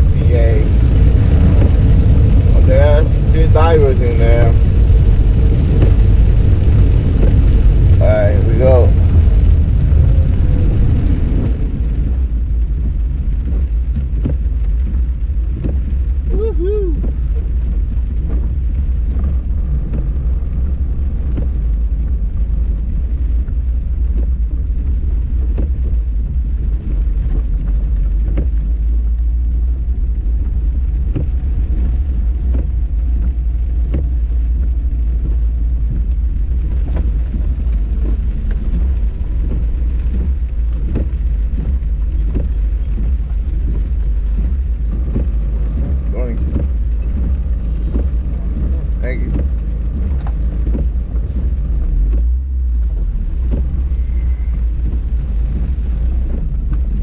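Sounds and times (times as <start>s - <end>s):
car rumbling: 0.0s - 57.0s
light taps and clicks: 26.7s - 28.8s, 30.4s - 52.4s.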